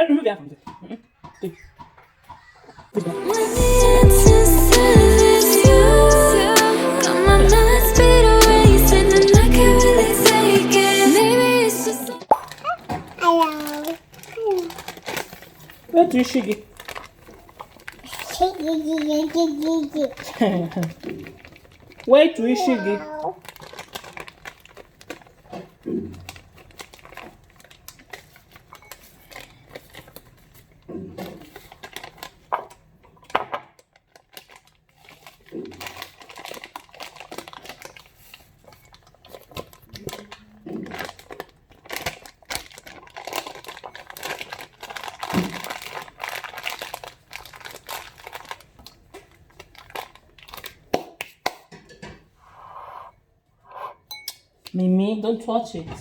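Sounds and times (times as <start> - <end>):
crinkling and rustling: 12.3 - 51.1.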